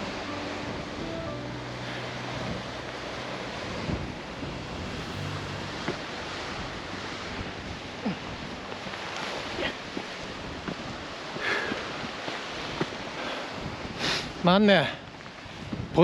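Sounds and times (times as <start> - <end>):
river rushing: 0.0 - 14.0
wind on microphone: 2.1 - 14.4.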